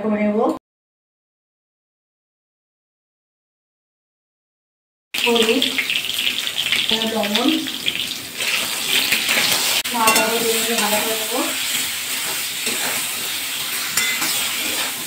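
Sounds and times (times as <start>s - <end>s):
eggplant sizzling in hot oil: 5.2s - 15.0s
spatula stirring: 8.4s - 15.0s.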